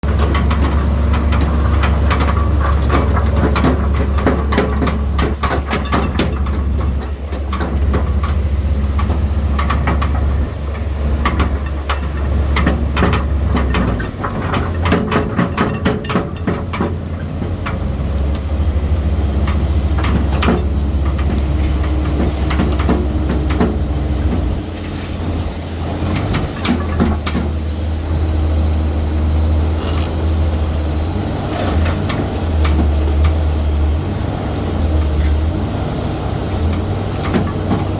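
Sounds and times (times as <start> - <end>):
metallic clanks and knocks: 0.0 - 18.5, 19.3 - 28.0, 36.6 - 37.9
excavator diesel engine: 0.0 - 37.9.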